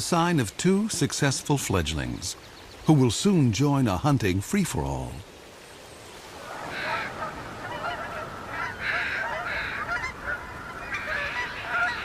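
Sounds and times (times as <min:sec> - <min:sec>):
waterfowl honking: 0:06.4 - 0:12.0.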